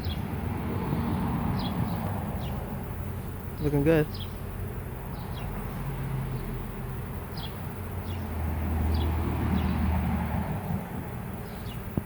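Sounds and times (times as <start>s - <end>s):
bird chirps: 4.0s - 4.4s.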